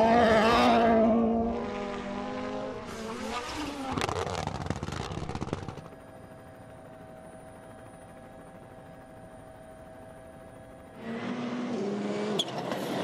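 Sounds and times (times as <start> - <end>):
rally car engine: 0.0 - 5.9, 11.0 - 13.0
rapid crackling pops: 3.3 - 5.9.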